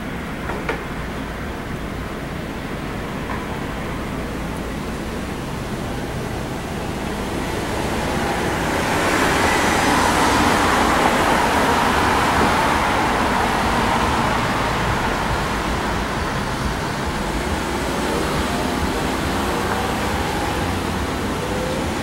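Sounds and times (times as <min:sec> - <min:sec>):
road traffic rumble: 0:00.0 - 0:22.0
vehicle passing by: 0:06.0 - 0:22.0.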